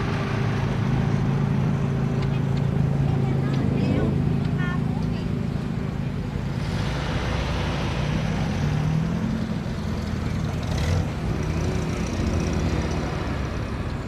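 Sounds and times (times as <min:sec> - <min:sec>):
vehicle engine passing at low revs: 0:05.4 - 0:14.0.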